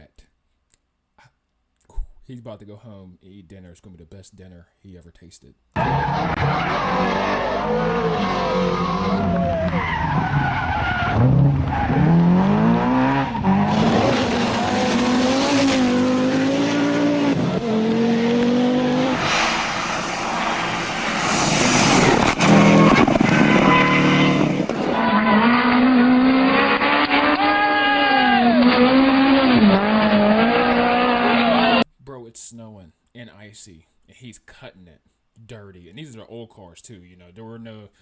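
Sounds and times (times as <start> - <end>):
rally car engines revving: 5.8 - 31.8
tyre and road noise: 5.8 - 31.8.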